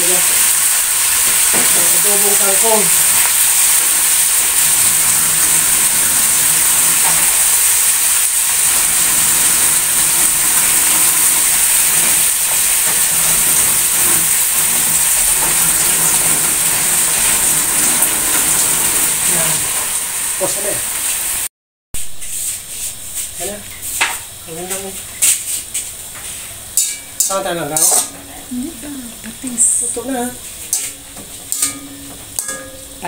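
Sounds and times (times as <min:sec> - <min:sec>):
tap water running into basin: 0:00.0 - 0:21.2
greens sizzling in oil: 0:00.0 - 0:33.0.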